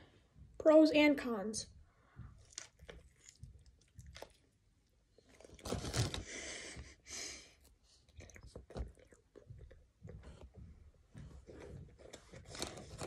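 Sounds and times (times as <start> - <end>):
chewing with wet clicks: 2.3 - 5.6, 7.6 - 9.8.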